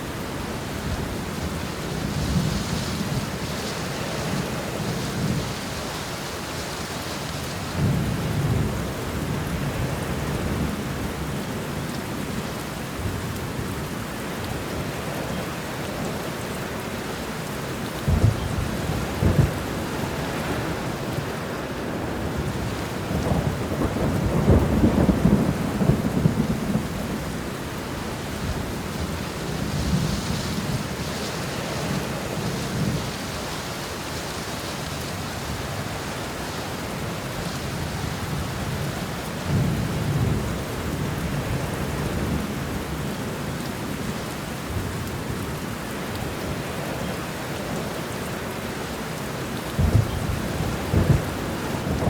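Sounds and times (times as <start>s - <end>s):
heavy rain: 0.0s - 52.0s
thunder rumbling: 18.0s - 21.2s, 22.0s - 33.6s, 49.7s - 52.0s.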